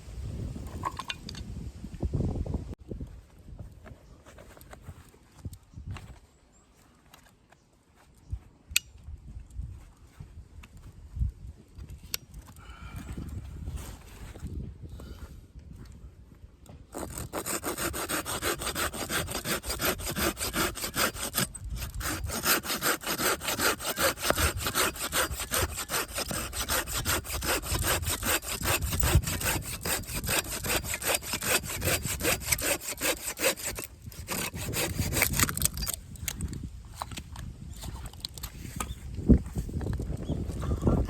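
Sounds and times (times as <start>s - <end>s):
hand saw cutting wood: 16.9s - 36.0s.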